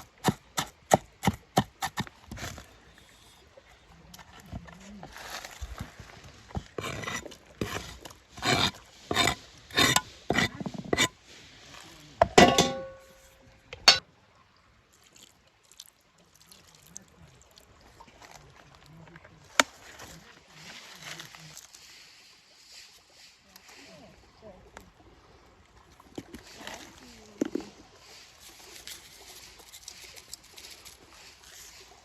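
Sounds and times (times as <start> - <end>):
cookware scraping: 6.5 - 11.2, 12.2 - 13.2, 13.8 - 14.0
dish clinking and ringing: 12.2 - 13.2, 13.8 - 14.0.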